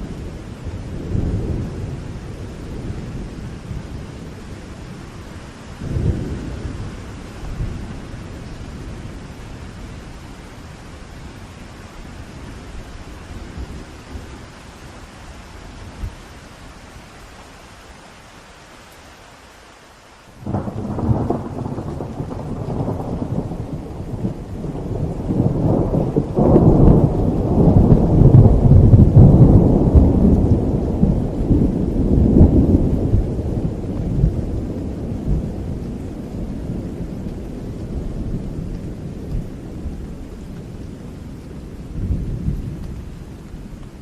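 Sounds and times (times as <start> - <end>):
low thunder rumble: 0.0 - 10.2, 20.4 - 44.0
steady rain: 0.0 - 44.0
thunder clap: 20.4 - 40.0.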